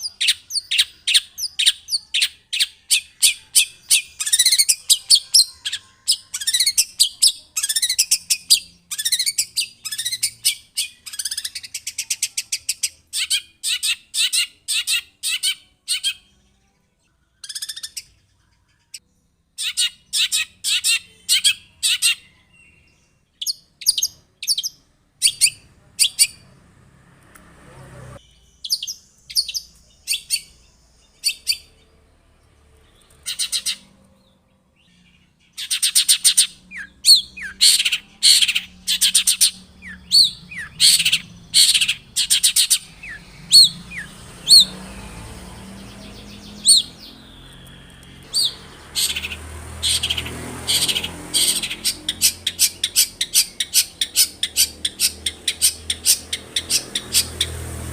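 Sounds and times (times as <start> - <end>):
bird singing harsh high notes: 0.0 - 16.4, 32.9 - 57.9.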